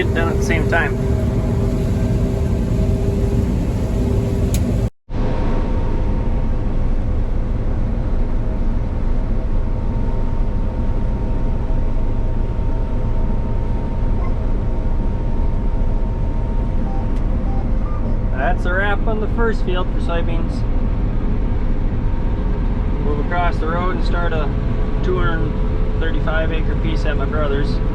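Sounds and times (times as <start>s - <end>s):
combine harvester rumbling: 0.0s - 4.9s.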